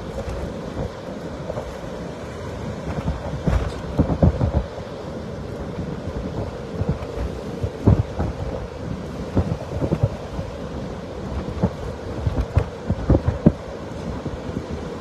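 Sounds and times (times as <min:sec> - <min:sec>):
wind buffeting microphone: 0:00.0 - 0:15.0
gust thumps on microphone: 0:02.9 - 0:04.7, 0:07.8 - 0:08.5.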